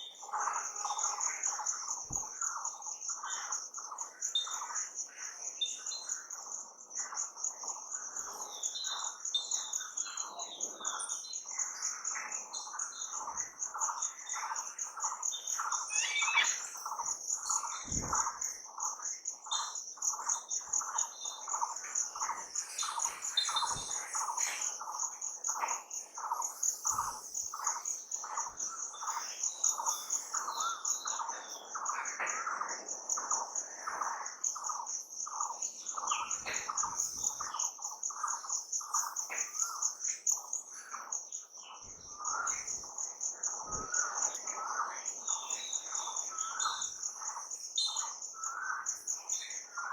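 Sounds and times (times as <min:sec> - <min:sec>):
high-pitched insect trill: 0:00.0 - 0:49.9
birds chirping: 0:12.4 - 0:18.9.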